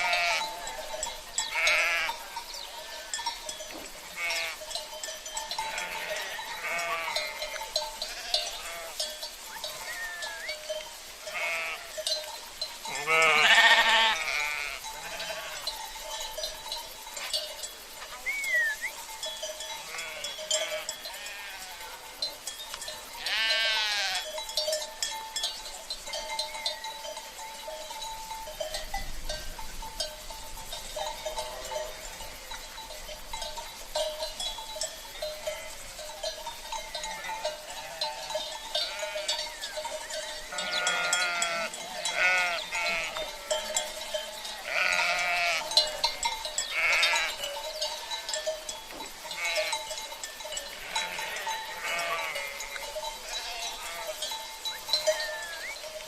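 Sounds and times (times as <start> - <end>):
sheep bleating: 0.0 - 0.6, 1.5 - 3.2, 4.1 - 4.6, 5.6 - 9.1, 9.8 - 10.6, 11.3 - 12.0, 12.9 - 15.7, 19.8 - 22.0, 23.2 - 24.3, 37.1 - 39.5, 40.5 - 43.7, 44.6 - 45.8, 46.6 - 47.4, 49.3 - 49.9, 50.8 - 54.2
livestock bells jingling: 0.0 - 56.0.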